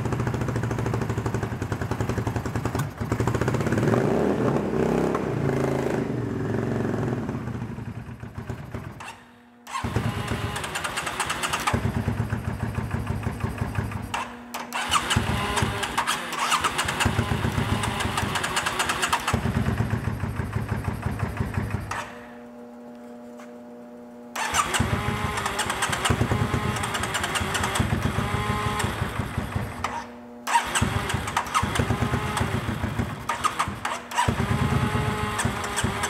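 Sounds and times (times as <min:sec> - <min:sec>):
motorcycle engine running: 0:00.0 - 0:09.1, 0:09.7 - 0:36.0
engine being cranked: 0:09.7 - 0:11.9, 0:14.1 - 0:19.5, 0:24.4 - 0:28.0, 0:29.8 - 0:32.6, 0:33.2 - 0:36.0.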